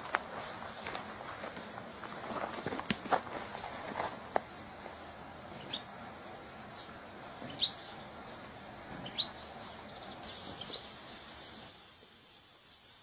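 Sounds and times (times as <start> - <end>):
steady high hiss: 0.0 - 13.0
short high bird chirps: 10.2 - 11.7.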